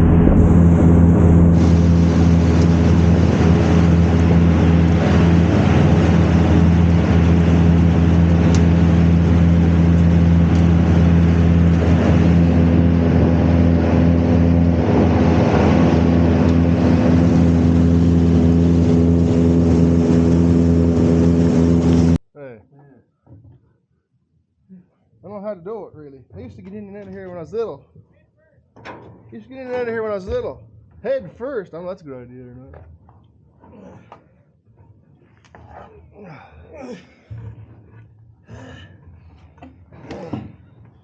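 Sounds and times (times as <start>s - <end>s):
silage blower droning: 0.0s - 22.2s.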